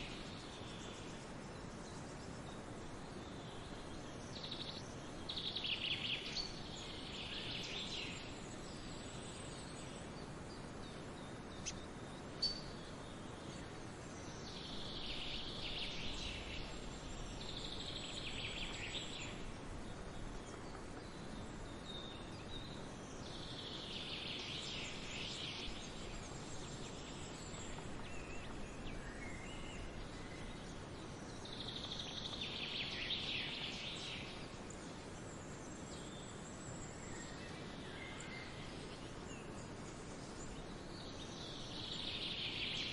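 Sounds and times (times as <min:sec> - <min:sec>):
outdoor background hiss: 0:00.0 - 0:42.9.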